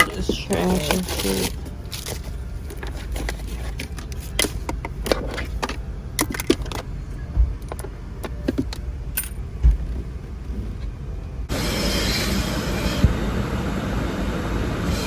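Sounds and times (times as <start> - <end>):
small hard objects clinking: 0.0 - 6.8
heavy thumps: 0.0 - 11.5.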